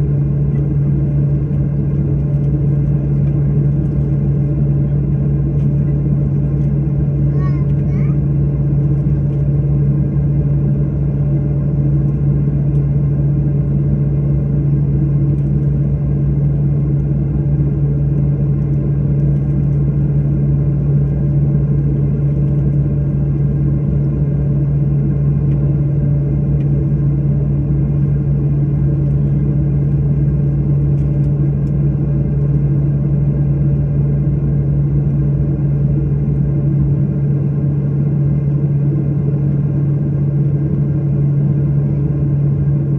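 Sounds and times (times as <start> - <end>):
airliner cabin drone: 0.0 - 42.9.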